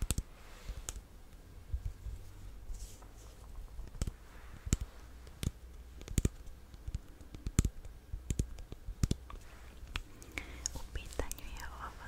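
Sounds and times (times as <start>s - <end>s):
sharp clicks: 0.0s - 1.1s, 3.8s - 11.6s
faint low hum: 0.0s - 12.0s.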